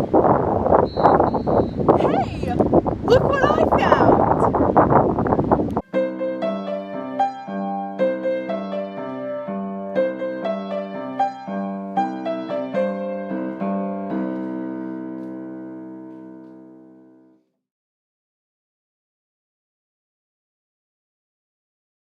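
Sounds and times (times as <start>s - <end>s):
solo piano music: 5.7s - 17.5s.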